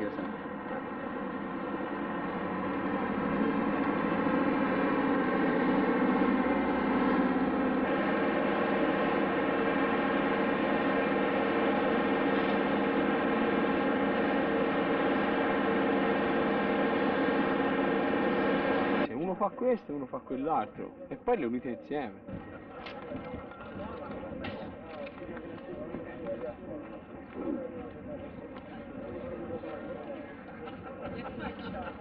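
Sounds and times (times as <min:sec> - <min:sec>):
aircraft engine drone: 0:00.0 - 0:19.1.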